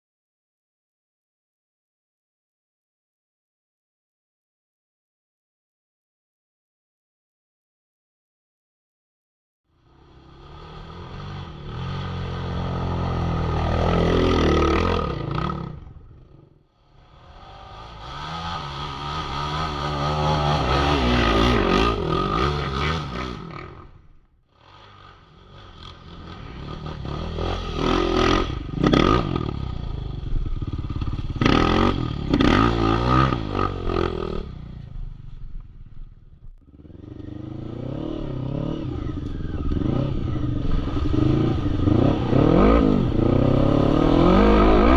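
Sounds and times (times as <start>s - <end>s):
quad bike engines revving: 9.8s - 44.9s.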